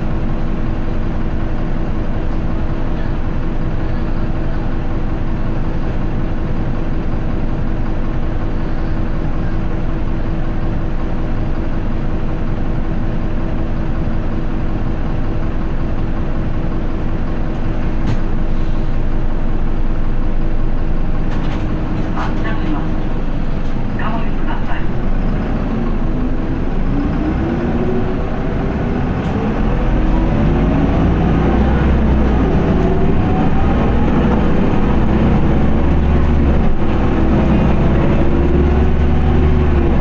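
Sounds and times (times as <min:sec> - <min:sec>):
bus engine droning: 0:00.0 - 0:40.0
constant whine: 0:21.3 - 0:40.0.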